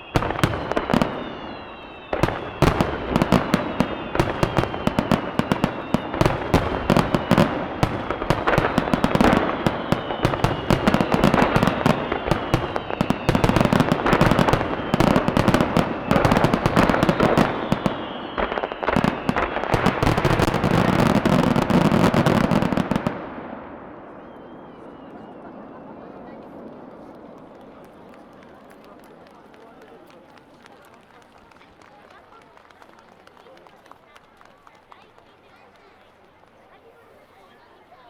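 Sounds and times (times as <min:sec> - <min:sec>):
firework whistles: 0:00.0 - 0:29.9
fireworks bursting and crackling: 0:00.0 - 0:36.7.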